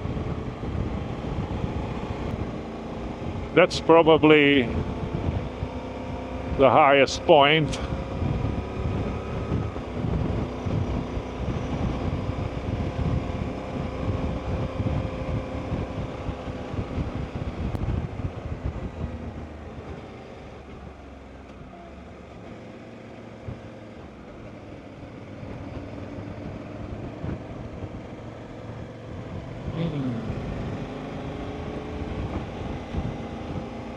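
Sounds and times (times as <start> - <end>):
wind noise on microphone: 0.0 - 3.6, 4.6 - 6.6, 7.7 - 20.0, 25.4 - 28.1, 31.6 - 33.9
motorcycle engine running: 0.0 - 33.9.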